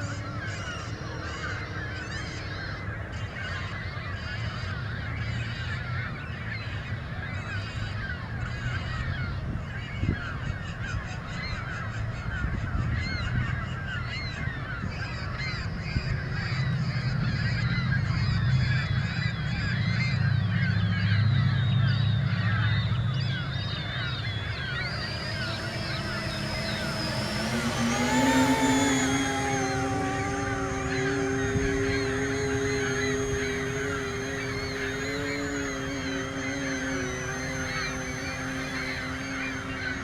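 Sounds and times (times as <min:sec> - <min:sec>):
flock of birds calling: 0:23.1 - 0:40.0.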